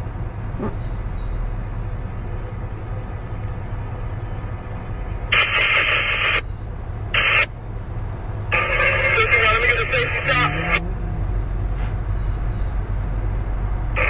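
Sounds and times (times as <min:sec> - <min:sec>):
radio scanner bursts: 0:05.4 - 0:06.4, 0:07.2 - 0:07.5, 0:08.6 - 0:10.8
freight train rumbling past: 0:09.4 - 0:14.0.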